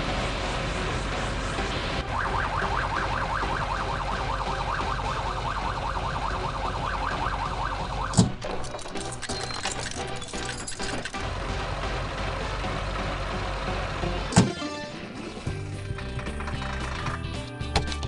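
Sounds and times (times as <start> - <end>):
fast yelping siren: 2.0 - 8.2.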